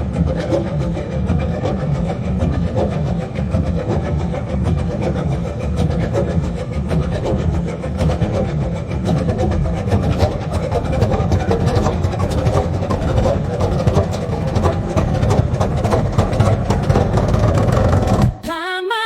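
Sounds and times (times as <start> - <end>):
diesel train rumbling and clattering: 0.0 - 18.4.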